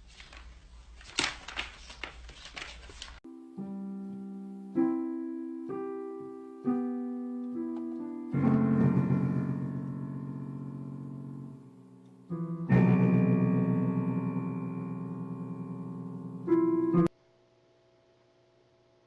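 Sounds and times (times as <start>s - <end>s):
rustling: 0.0s - 3.2s
slow keyboard chords: 3.3s - 17.2s.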